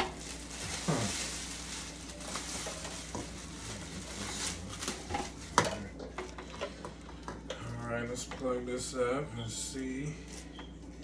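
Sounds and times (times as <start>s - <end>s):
packaging rustling: 0.0s - 5.5s.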